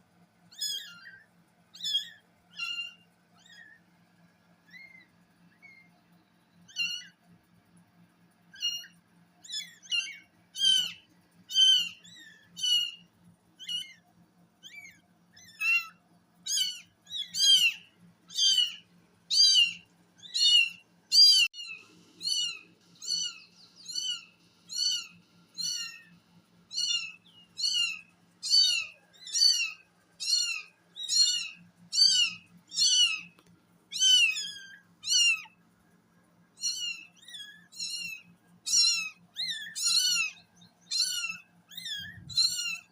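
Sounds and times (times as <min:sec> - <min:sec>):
kitten mewing: 0:40.9 - 0:42.9.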